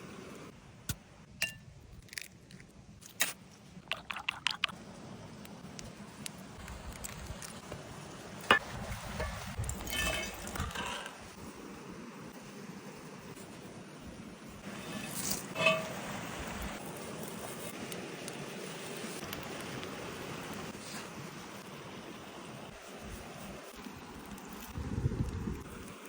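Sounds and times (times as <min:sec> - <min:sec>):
cookware clinking and knocking: 0:09.2 - 0:11.0, 0:15.6 - 0:16.0.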